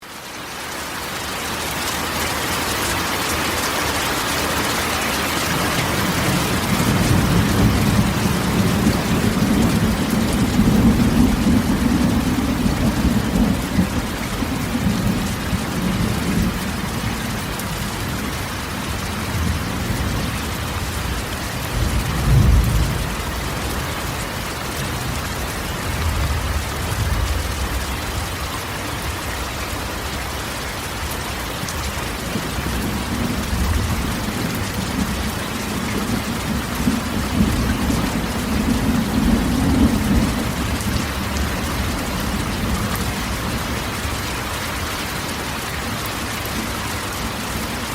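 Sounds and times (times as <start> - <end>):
rain on a metal roof: 0.0 - 47.9
thunder rolling: 5.6 - 17.4, 21.0 - 23.8, 32.7 - 43.7
thunder clap: 21.7 - 23.2.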